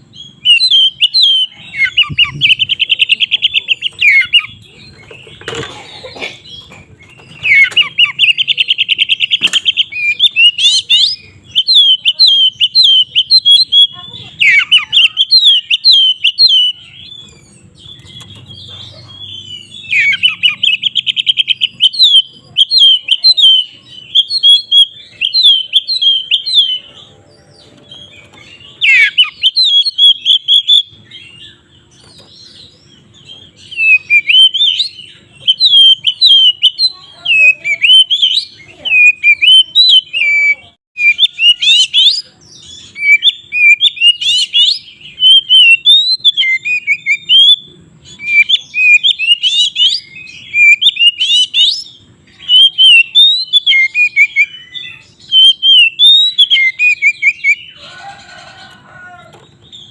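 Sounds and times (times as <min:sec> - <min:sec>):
bird singing whistled notes: 0:00.3 - 0:04.6, 0:33.7 - 0:57.7.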